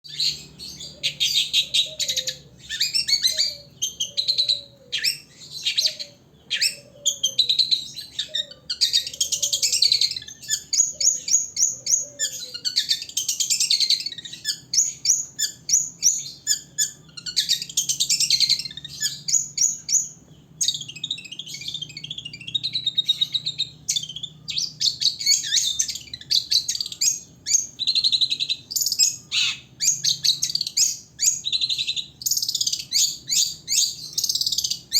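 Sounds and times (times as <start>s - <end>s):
bird chattering song: 0.0s - 34.9s.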